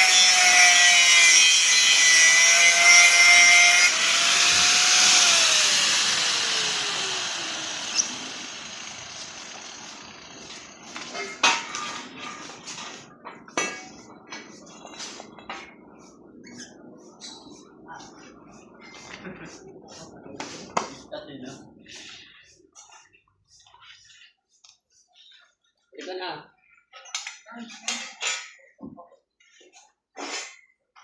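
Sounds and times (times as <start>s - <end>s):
power saw cutting wood: 0.0s - 12.6s.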